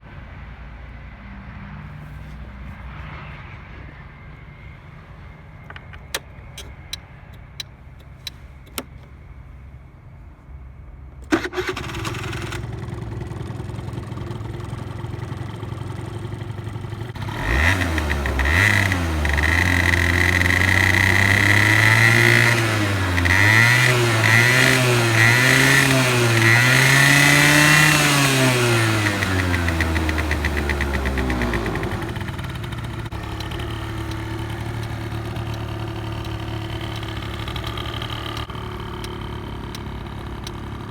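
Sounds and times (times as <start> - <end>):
sharp clicks: 5.6 - 9.2
scooter engine idling and revving: 11.3 - 40.9.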